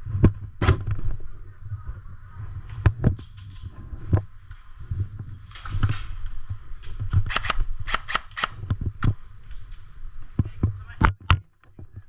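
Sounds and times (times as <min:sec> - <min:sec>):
sharp cracks: 0:07.1 - 0:08.7.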